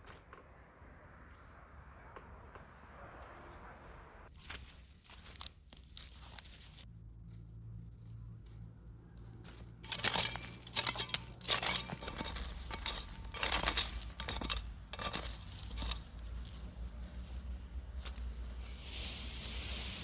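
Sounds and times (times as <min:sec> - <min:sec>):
crinkling and rustling handling: 0:04.3 - 0:18.8.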